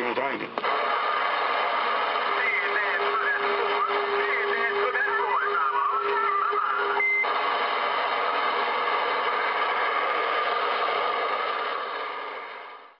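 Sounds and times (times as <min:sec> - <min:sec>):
radio voice transmission: 0:00.0 - 0:07.4
radio static hiss: 0:00.0 - 0:10.3
steady whistle: 0:02.4 - 0:07.3.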